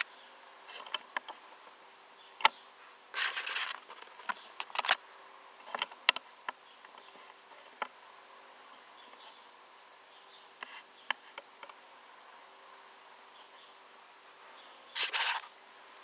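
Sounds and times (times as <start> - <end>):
faint steady hum: 0.0 - 16.0
brief rustle: 3.2 - 5.0, 15.0 - 15.5.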